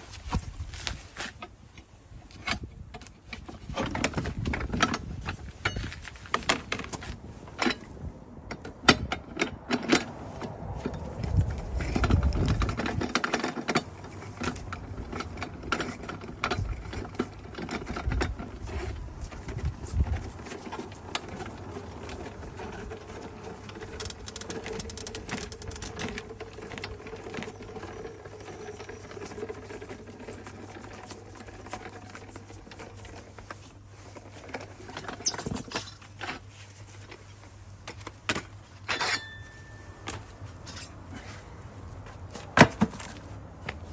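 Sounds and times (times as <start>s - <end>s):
clicks and knocks of tyre changer: 1.2s - 33.6s.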